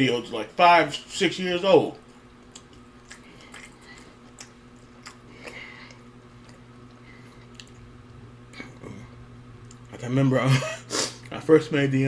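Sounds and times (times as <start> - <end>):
steady low hum: 0.0 - 12.0
person chewing food: 2.0 - 9.9.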